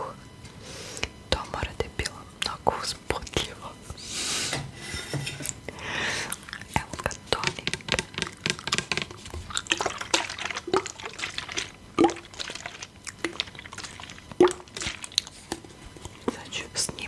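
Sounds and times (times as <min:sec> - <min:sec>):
wet liquid clicks and drips: 0:07.6 - 0:16.2.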